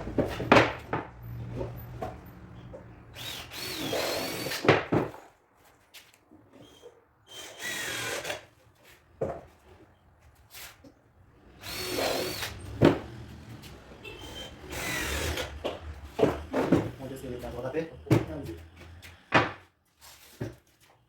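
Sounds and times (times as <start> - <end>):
cordless drill driving screws: 3.1 - 4.7, 7.3 - 8.5, 11.4 - 12.9, 13.6 - 16.9.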